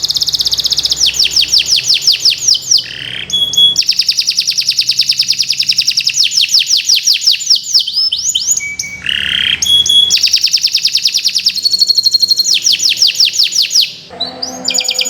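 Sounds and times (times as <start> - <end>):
canary singing: 0.0 - 15.0.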